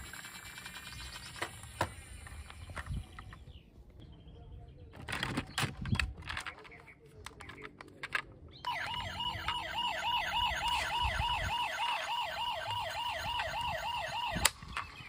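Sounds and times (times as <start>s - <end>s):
toy siren yelping: 8.7s - 15.0s.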